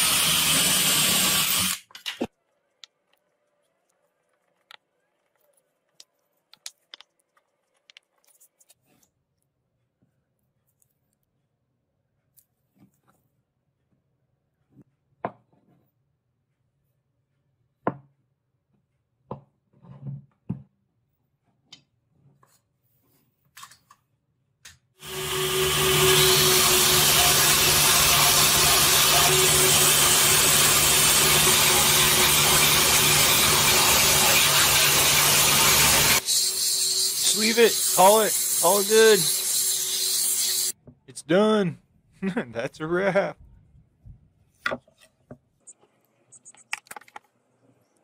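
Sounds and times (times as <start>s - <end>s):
power tool on steel: 0.0s - 1.9s, 25.0s - 40.8s.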